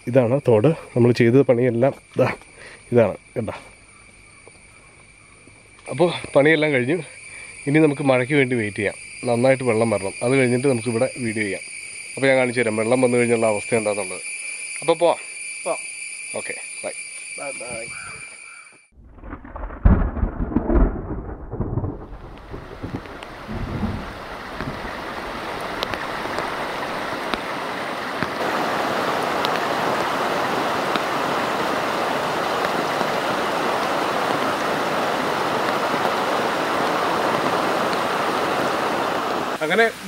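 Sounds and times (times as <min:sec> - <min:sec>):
thunder rumbling: 0:19.0 - 0:39.6
heavy rain: 0:19.0 - 0:40.0.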